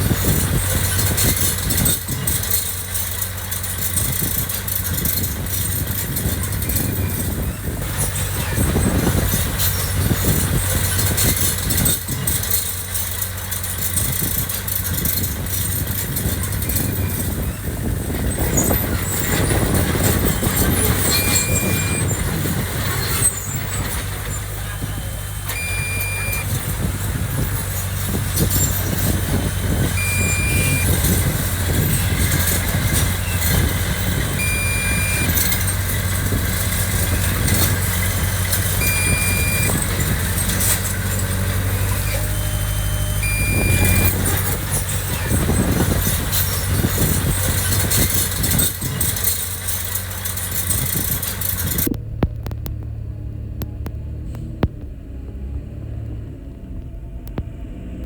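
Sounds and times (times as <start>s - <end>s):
diesel engine running under load: 0.0s - 58.0s
short electronic beep: 21.0s - 22.1s, 25.0s - 26.6s, 30.0s - 31.1s, 34.3s - 35.7s, 38.8s - 39.9s, 42.1s - 44.6s.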